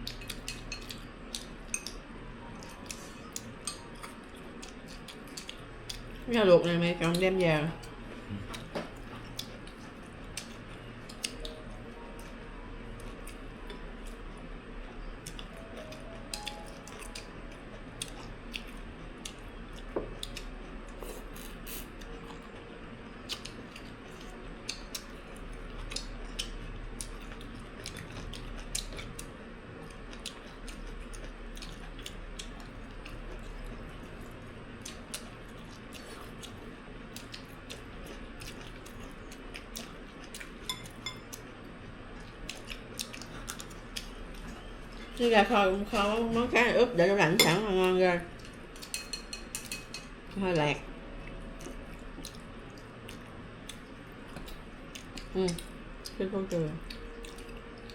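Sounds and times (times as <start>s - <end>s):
chewing: 0.0s - 6.3s, 7.1s - 12.4s, 13.0s - 46.2s, 47.8s - 50.4s, 51.2s - 57.9s
steady low hum: 0.0s - 57.9s
utensils clicking on bowls: 48.9s - 50.1s.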